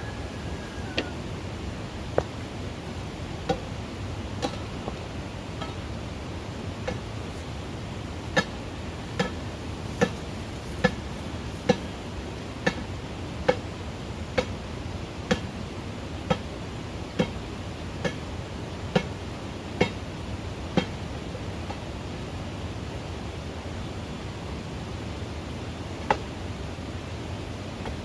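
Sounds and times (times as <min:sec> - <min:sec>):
hand tool striking: 0:09.2 - 0:09.4.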